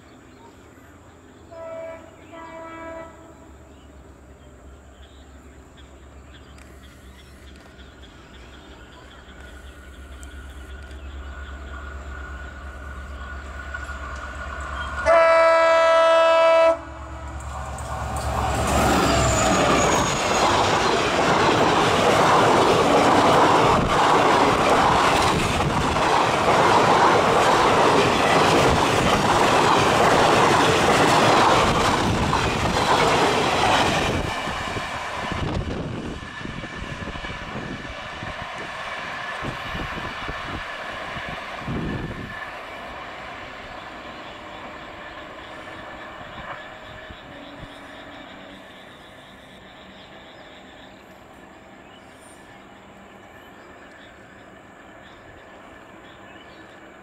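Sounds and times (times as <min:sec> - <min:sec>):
diesel locomotive engine drone: 0:00.0 - 0:57.0
train horn blast: 0:01.5 - 0:03.4, 0:15.0 - 0:17.5.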